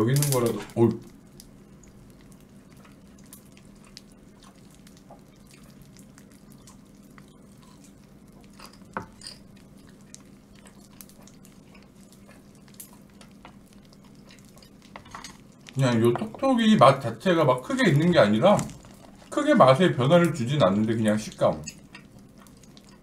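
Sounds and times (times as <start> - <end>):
faint steady hum: 0.0 - 23.0
popping candy crackles: 0.0 - 23.0
person chewing: 1.5 - 15.8, 18.6 - 19.4, 21.7 - 23.0.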